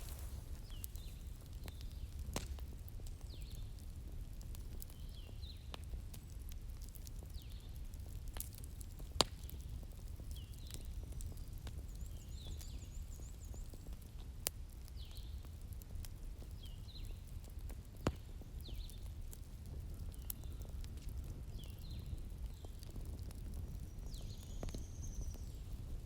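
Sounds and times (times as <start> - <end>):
sharp pops of fire: 0.0 - 3.6, 4.4 - 12.8, 17.4 - 26.0
wood fire crackling: 0.0 - 26.0.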